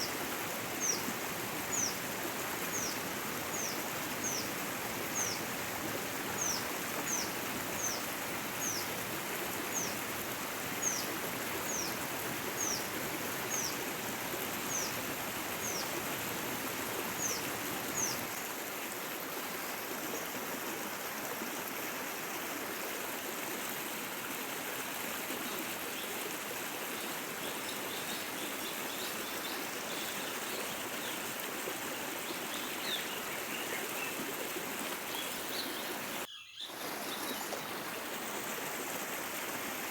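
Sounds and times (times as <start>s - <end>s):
stream rushing: 0.0s - 39.9s
faint bird chirps: 35.7s - 37.4s.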